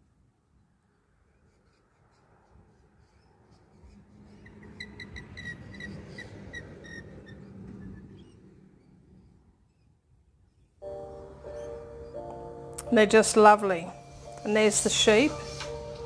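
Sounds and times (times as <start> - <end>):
low rumbling background: 10.9 - 16.0.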